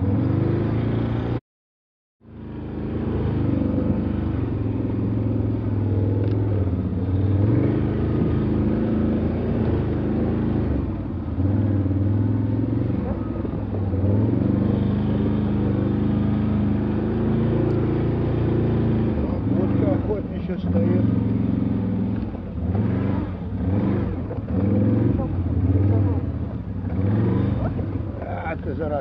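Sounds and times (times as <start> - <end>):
vehicle engine revving: 0.0 - 1.4, 2.2 - 29.0.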